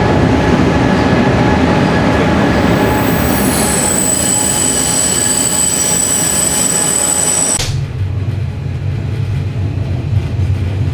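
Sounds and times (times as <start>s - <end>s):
train rumbling: 0.0s - 10.9s
train brakes squealing: 2.2s - 7.6s.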